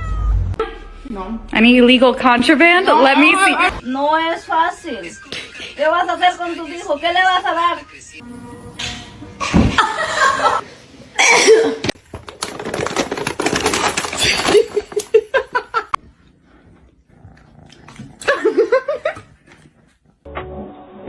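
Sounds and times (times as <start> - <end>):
pet animal crying: 0.0 - 0.6.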